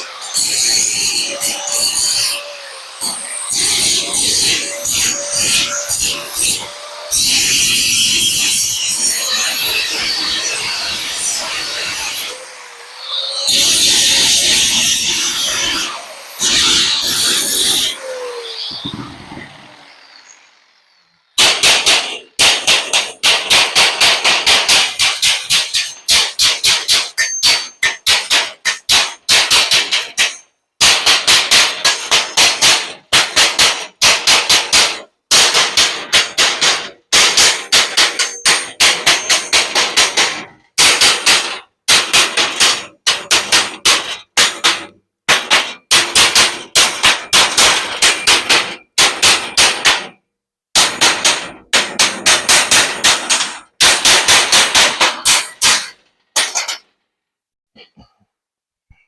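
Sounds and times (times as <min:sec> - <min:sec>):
hammer striking metal: 0:21.4 - 0:50.2, 0:50.8 - 0:56.9.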